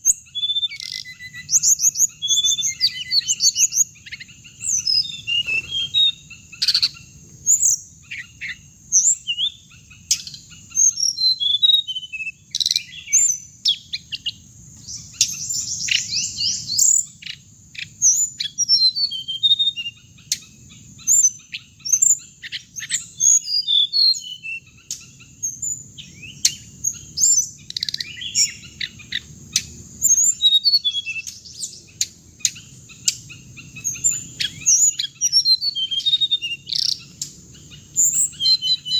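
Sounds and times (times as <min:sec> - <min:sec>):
bird chirping and trilling: 0:00.0 - 0:38.9.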